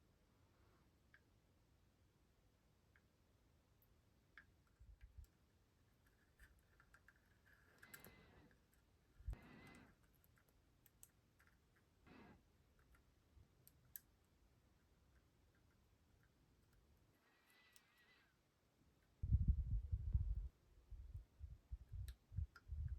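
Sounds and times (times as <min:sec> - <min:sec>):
small parts clicking: 0:06.1 - 0:11.9, 0:17.4 - 0:18.2.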